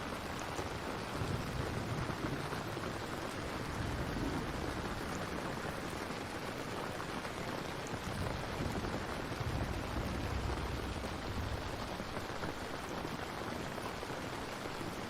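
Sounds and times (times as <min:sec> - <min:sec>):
rain hissing: 0:00.0 - 0:15.0
deep low rumble: 0:08.0 - 0:12.3.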